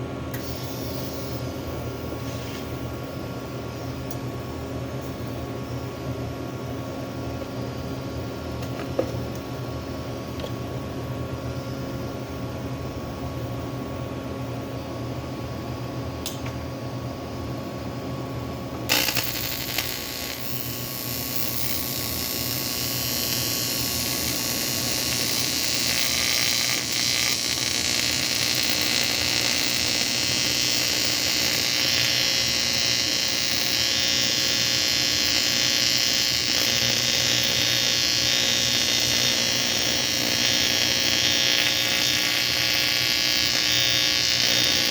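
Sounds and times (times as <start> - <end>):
low electrical hum: 0.0 - 44.9
welding arc crackling hiss: 18.9 - 44.9.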